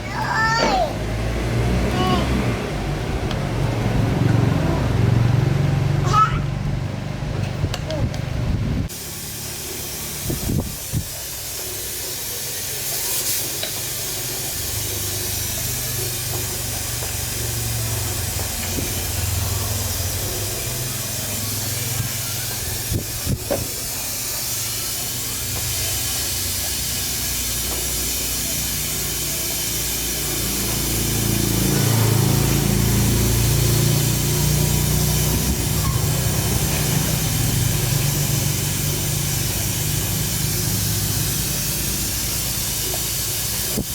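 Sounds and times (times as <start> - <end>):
rushing air hiss: 8.7 - 43.9.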